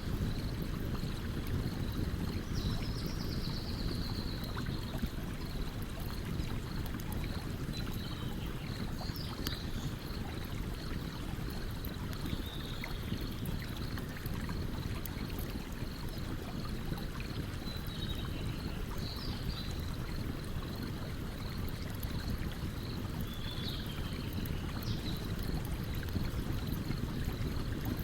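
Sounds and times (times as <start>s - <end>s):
stream running: 0.0s - 28.0s.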